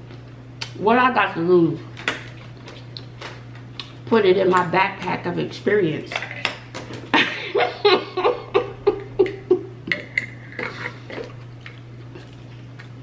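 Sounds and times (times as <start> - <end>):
chewing pizza close up: 10.6 - 13.0.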